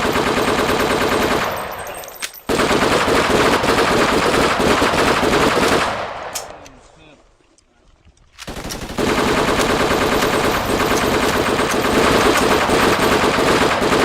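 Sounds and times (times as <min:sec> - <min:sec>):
automatic machine-gun fire: 0:00.0 - 0:01.7, 0:02.5 - 0:06.2, 0:08.5 - 0:14.0.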